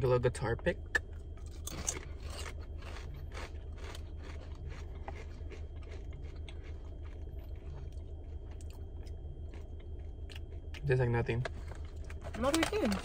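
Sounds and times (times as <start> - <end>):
car air conditioning hum: 0.0 - 13.0
people crunching tortilla chips: 2.2 - 8.8.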